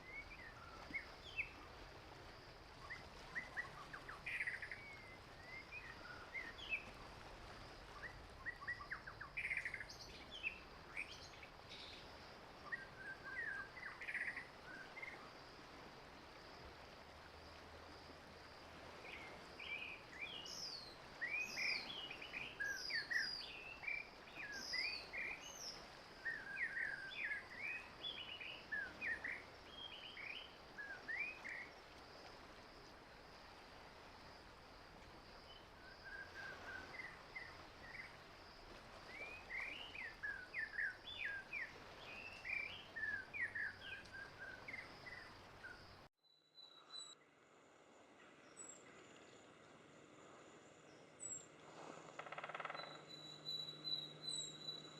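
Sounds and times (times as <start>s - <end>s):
birds chirping and whistling: 52.6s - 54.9s.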